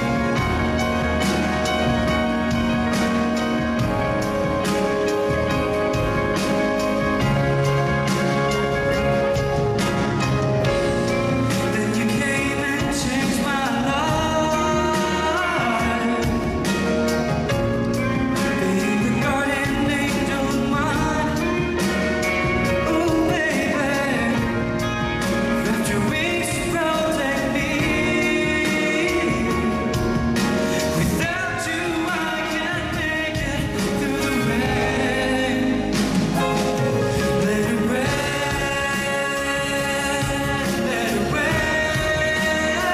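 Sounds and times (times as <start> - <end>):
pop song with man singing: 0.0 - 42.9.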